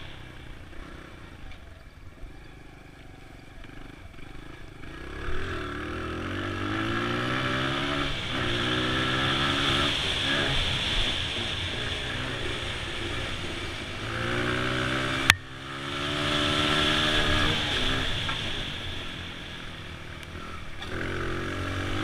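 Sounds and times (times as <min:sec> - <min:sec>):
dirt bike engine revving: 0:03.5 - 0:22.0.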